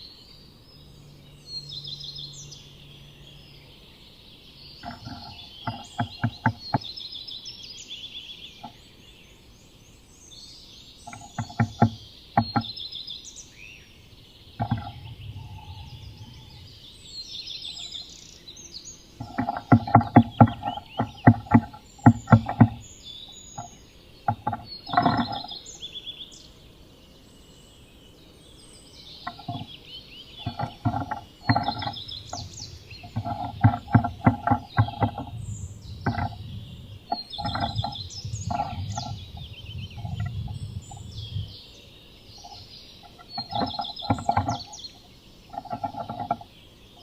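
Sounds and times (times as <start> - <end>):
birds singing: 0.0 - 47.0
bird tapping inside wooden box: 4.8 - 7.0, 11.0 - 12.8, 14.6 - 16.6, 19.2 - 25.6, 29.2 - 41.1, 42.4 - 46.6.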